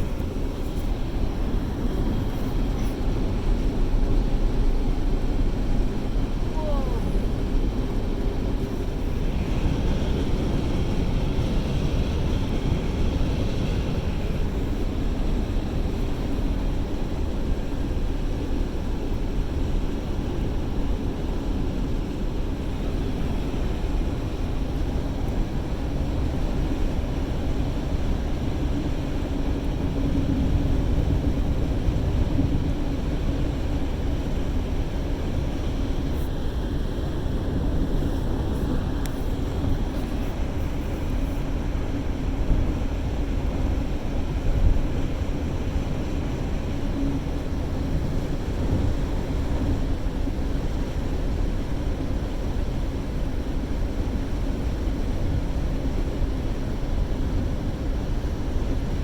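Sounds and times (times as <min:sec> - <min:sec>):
car engine and road noise: 0:00.0 - 0:17.2.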